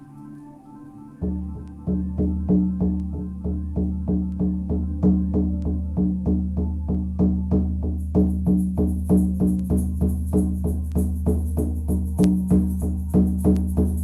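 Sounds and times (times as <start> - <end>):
low sustained tone: 0.0 - 14.0
hand drum beating: 1.2 - 14.0
high shimmering rattle: 7.9 - 14.0.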